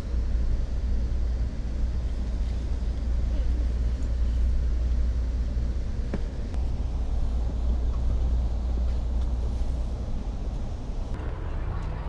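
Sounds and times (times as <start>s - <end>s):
train rumbling from inside: 0.0s - 12.0s.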